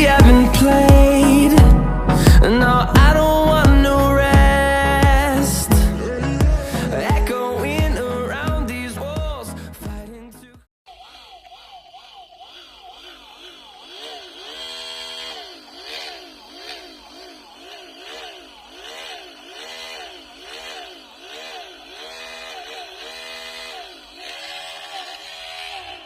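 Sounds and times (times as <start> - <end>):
electric drill motor whining: 10.9 - 26.0.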